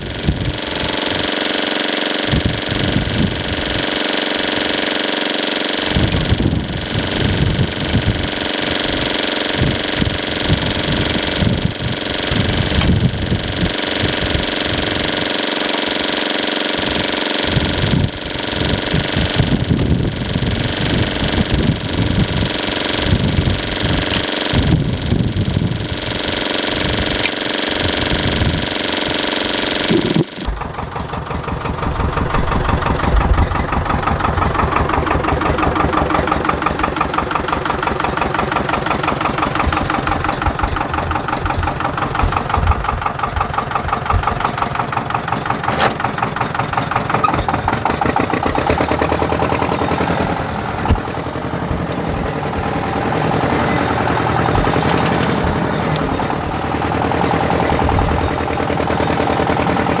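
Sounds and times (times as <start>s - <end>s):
engine running: 0.0s - 60.0s.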